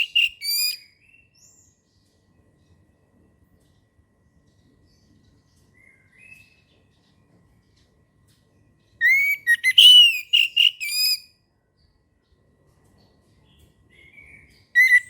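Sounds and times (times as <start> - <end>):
thrush singing whistled notes: 0.0 - 0.8, 9.0 - 11.3, 14.8 - 15.0.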